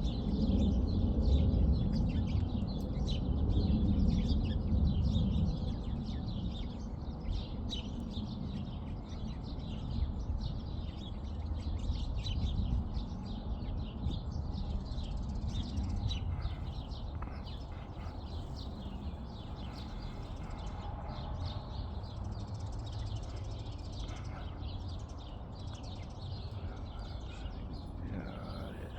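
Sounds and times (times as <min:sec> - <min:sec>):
small birds chirping: 0:00.0 - 0:28.9
jet airliner rumble: 0:12.5 - 0:28.9.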